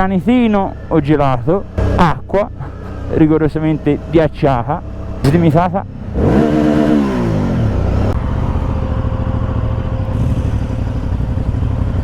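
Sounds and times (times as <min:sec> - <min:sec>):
motorcycle engine idling: 0:00.0 - 0:12.0
motorcycle engine throttle blip: 0:05.2 - 0:05.8.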